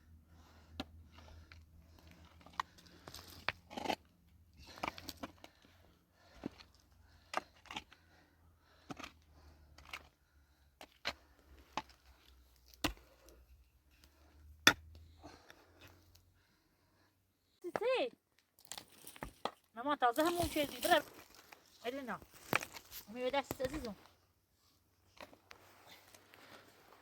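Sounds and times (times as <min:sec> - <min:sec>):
scraping and crinkling: 0:20.2 - 0:24.0.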